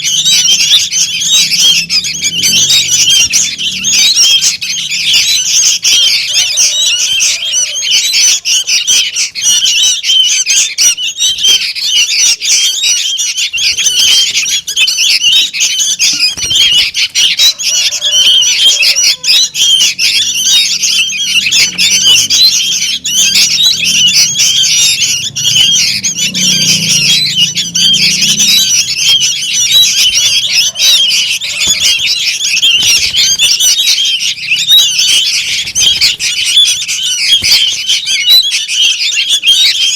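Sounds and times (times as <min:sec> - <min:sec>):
young birds begging calls: 0:00.0 - 0:39.9.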